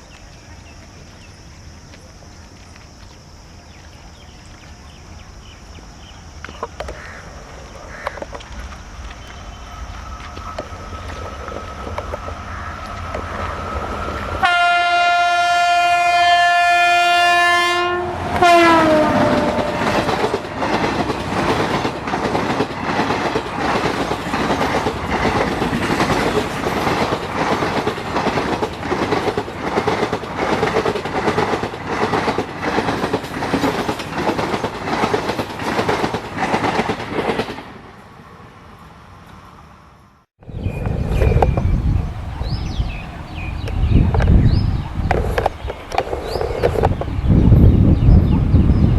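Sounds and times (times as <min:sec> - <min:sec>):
locomotive horn: 0:14.4 - 0:20.2
train wheels clacking over rail joints: 0:18.4 - 0:37.7.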